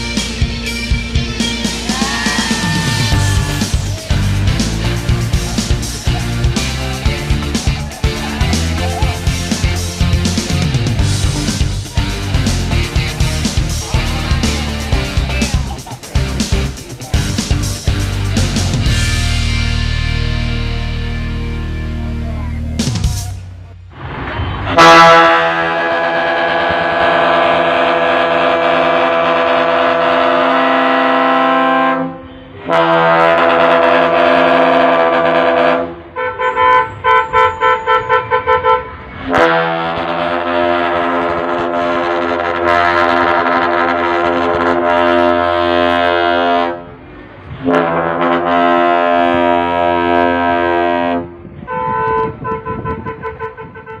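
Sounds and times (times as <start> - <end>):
multi-tone truck air horn: 24.7 - 47.0, 47.6 - 54.0.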